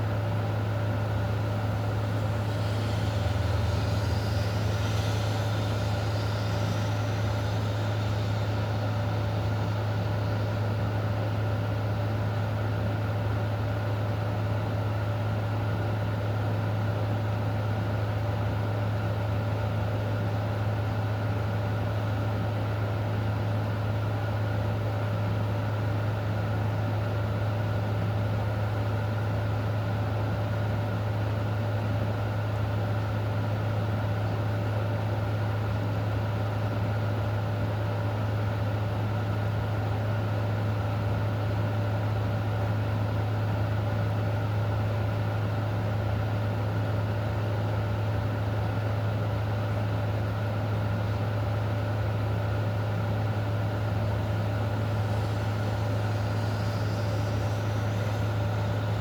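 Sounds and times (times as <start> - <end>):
low mechanical hum: 0.0 - 59.0
faint steady tones: 1.2 - 10.7, 53.6 - 59.0
even hiss: 1.3 - 10.6, 53.7 - 59.0.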